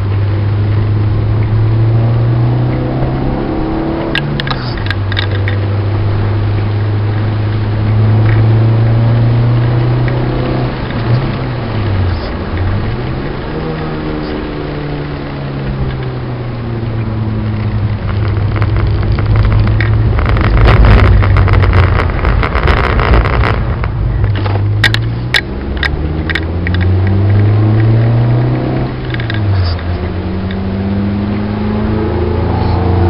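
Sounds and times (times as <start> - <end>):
car engine revving from cabin: 0.5 - 4.9, 24.4 - 33.0
water spray rush: 3.6 - 33.0.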